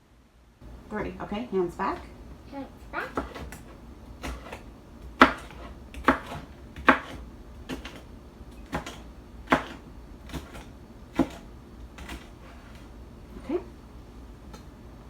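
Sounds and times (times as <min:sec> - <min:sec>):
knife chopping on cutting board: 0:03.1 - 0:12.8.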